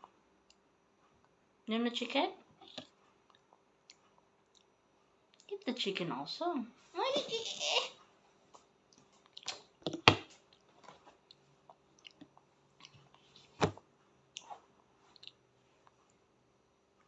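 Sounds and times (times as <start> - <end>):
child chewing: 2.6 - 5.5, 8.6 - 9.7, 10.4 - 13.4, 14.3 - 16.2.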